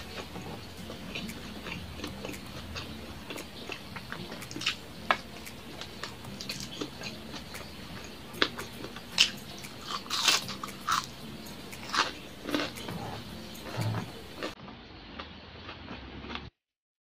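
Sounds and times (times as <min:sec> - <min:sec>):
chewing and wet mouth sounds: 0:00.0 - 0:16.5.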